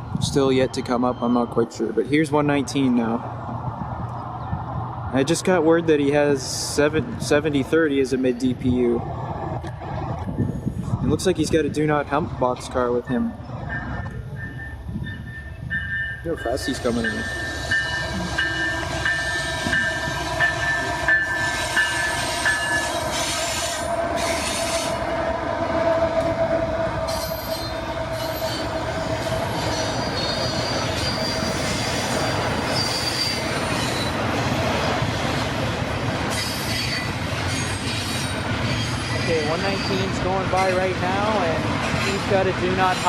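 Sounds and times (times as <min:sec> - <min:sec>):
freight train roaring past: 0:00.0 - 0:43.0
train bell ringing: 0:00.6 - 0:01.9, 0:12.9 - 0:24.8, 0:27.0 - 0:33.4
steady squealing tone: 0:13.5 - 0:34.2.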